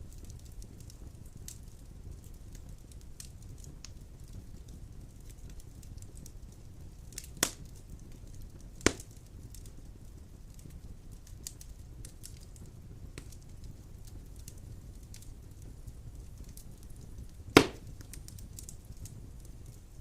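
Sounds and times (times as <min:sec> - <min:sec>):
wood fire crackling: 0:00.0 - 0:20.0
loud sharp pops: 0:08.8 - 0:09.0, 0:17.6 - 0:17.9.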